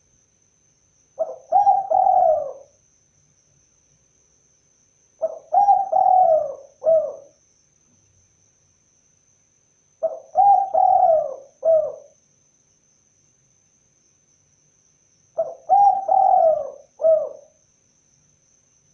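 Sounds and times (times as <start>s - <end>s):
dove cooing: 1.2s - 2.7s, 5.2s - 7.3s, 10.0s - 12.2s, 15.4s - 17.6s.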